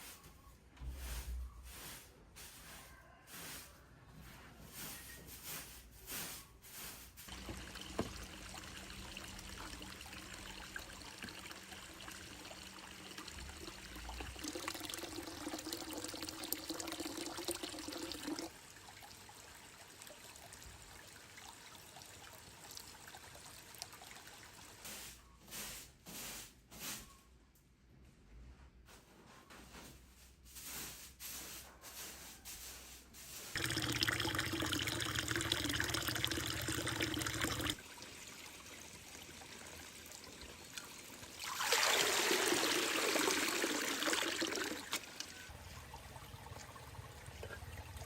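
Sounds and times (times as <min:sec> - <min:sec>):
water pouring: 0:07.3 - 0:24.8, 0:33.5 - 0:48.0.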